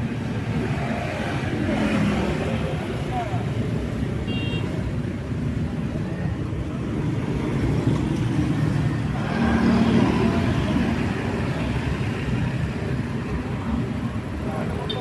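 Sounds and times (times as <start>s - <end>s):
road traffic rumble: 0.0s - 15.0s
vehicle passing: 7.0s - 12.4s.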